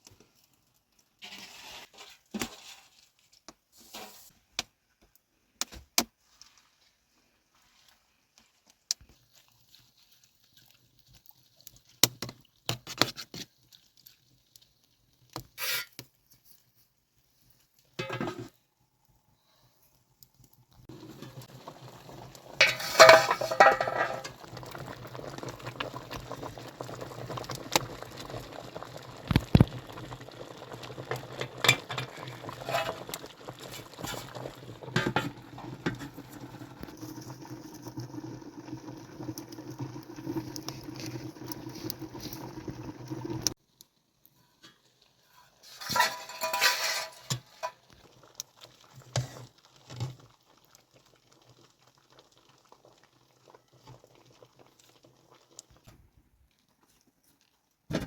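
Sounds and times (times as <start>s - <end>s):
pots and dishes clinking: 18.0s - 18.5s, 22.6s - 24.5s, 31.2s - 33.2s, 34.0s - 36.2s, 45.7s - 47.9s.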